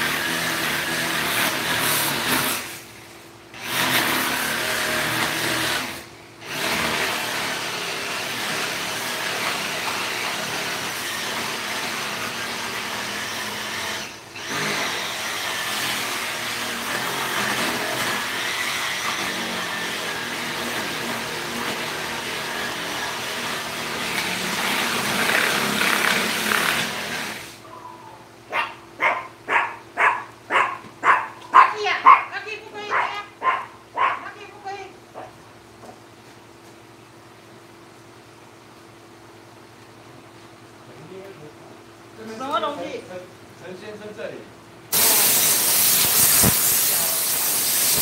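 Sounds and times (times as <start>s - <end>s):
motor running: 3.5s - 27.6s.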